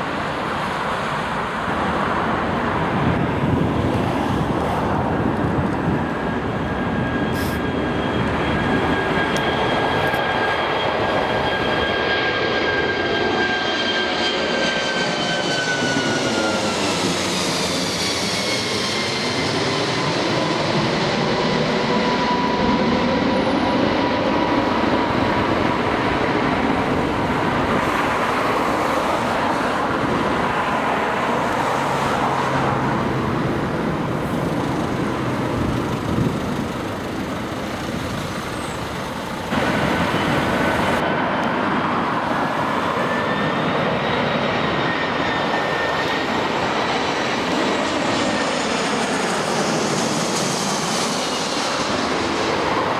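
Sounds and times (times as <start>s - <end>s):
jet airliner roar and whine: 0.0s - 52.9s.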